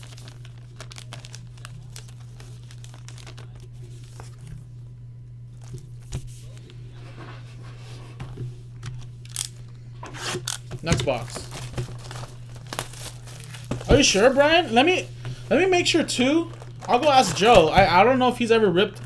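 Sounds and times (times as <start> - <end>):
packaging crinkling and tearing: 0.0 - 4.6, 10.4 - 15.5, 16.2 - 17.8.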